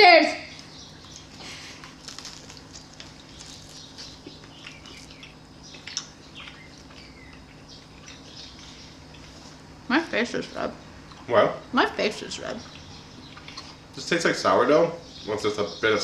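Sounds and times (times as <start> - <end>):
people chewing bread: 0.6 - 11.3, 12.2 - 14.2
crust crackling: 0.6 - 11.4.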